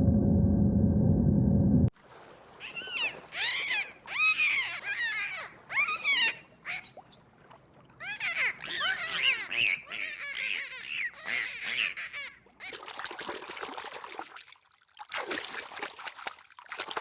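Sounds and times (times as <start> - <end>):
loud low drone: 0.0 - 1.9.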